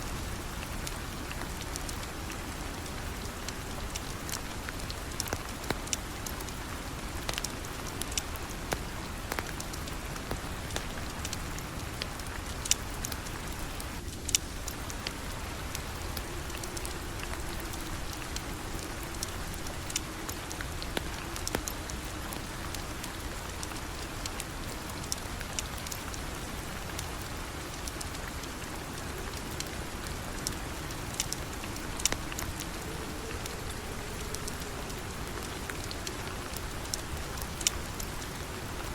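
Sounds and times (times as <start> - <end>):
rain falling: 0.0 - 38.9
sharp ticks and pops: 7.2 - 38.2.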